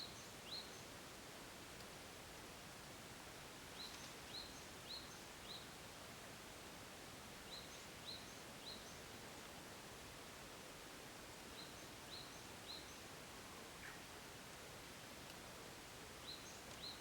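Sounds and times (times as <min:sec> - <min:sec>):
songbird chirping: 0:16.2 - 0:17.0.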